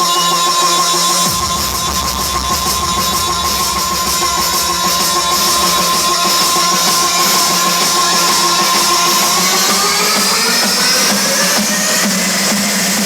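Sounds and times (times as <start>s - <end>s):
rock music: 1.2s - 10.4s.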